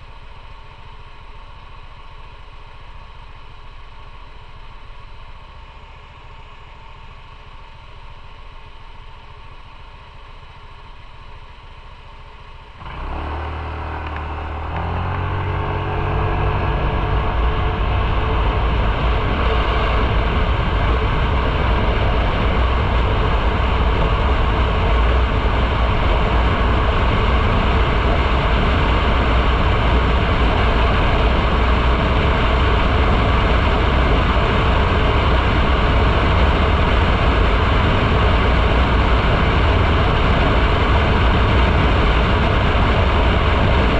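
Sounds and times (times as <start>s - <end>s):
motorcycle engine accelerating: 0.5s - 43.9s
road noise: 12.7s - 33.4s
wind noise: 14.1s - 43.9s.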